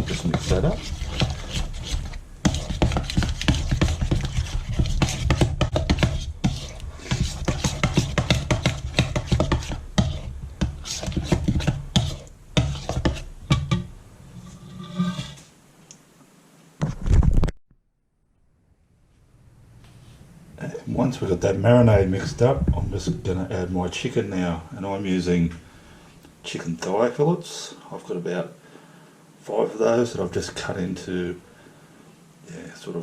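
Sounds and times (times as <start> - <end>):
spoon scraping bowl: 0.0 - 15.5.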